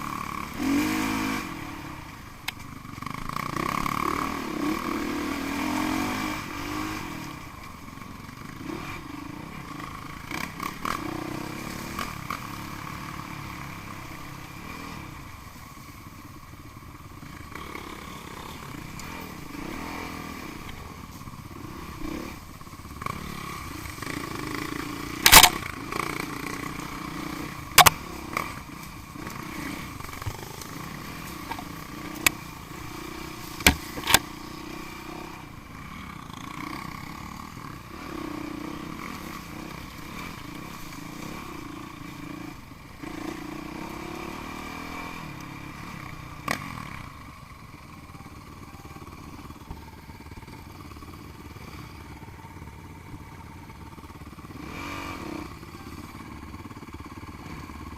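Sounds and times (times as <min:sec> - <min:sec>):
dirt bike engines revving: 0:00.0 - 0:57.9
sharp knocks: 0:33.6 - 0:34.2.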